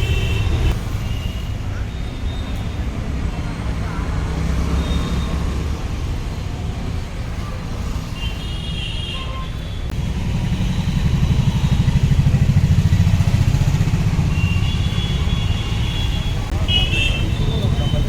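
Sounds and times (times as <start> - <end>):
street traffic noise: 0.0 - 18.0
vehicle engine running close by: 9.9 - 15.1.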